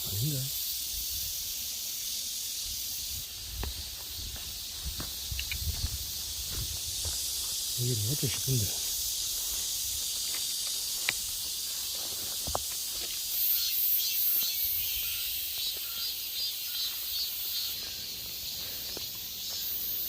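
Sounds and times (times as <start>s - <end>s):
insects shrilling: 0.0s - 20.0s
pulsing insect chirp: 0.0s - 20.0s.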